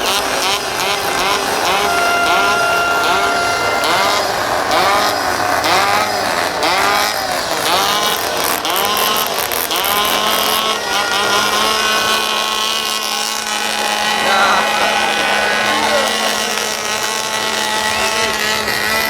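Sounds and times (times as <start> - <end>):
chainsaws revving: 0.0 - 19.0
steady horn-like tone: 0.9 - 6.8.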